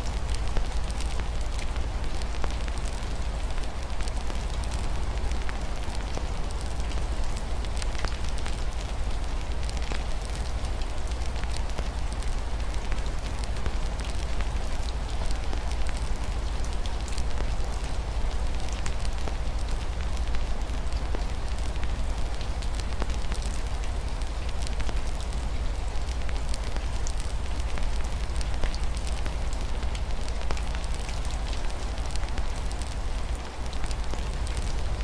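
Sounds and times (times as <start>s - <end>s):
rain falling: 0.0s - 35.0s
wood fire crackling: 18.6s - 35.0s.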